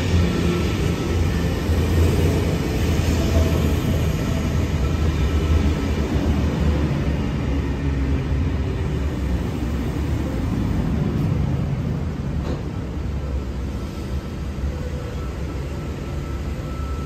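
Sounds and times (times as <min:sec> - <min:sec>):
train rumbling past: 0:00.0 - 0:17.0.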